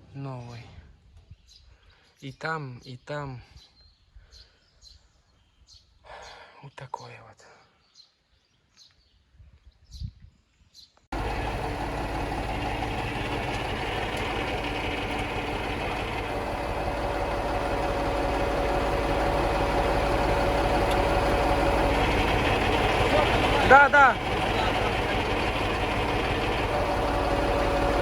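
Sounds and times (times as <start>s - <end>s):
heavy vehicle engine running: 11.1s - 28.0s.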